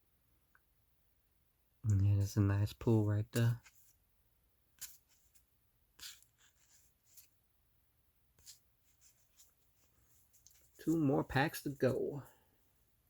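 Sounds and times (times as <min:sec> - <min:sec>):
trading cards rustling: 0:03.3 - 0:04.0, 0:04.8 - 0:07.4, 0:08.4 - 0:12.2.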